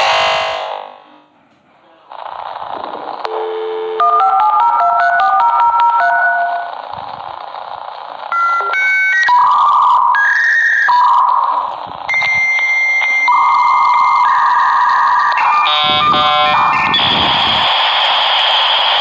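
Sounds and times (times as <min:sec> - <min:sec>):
dial tone: 0:03.3 - 0:06.7
touch-tone dialing beeps: 0:03.3 - 0:06.7, 0:08.3 - 0:16.2.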